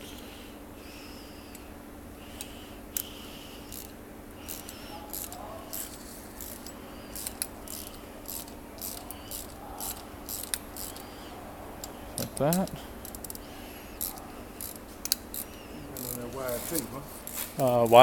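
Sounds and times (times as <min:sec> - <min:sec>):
metallic clicks and taps of tools: 0:04.5 - 0:11.1, 0:11.8 - 0:13.4, 0:14.0 - 0:17.4.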